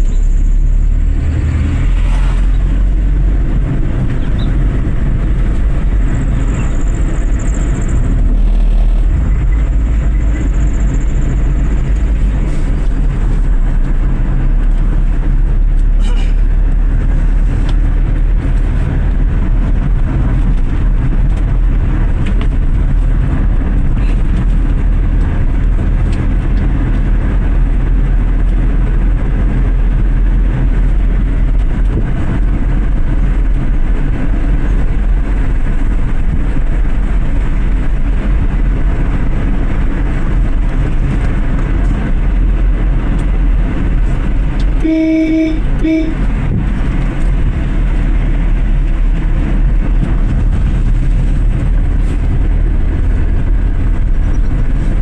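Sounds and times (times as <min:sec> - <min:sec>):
car engine and road noise: 0:00.0 - 0:55.0
car horn beeps: 0:44.8 - 0:46.3.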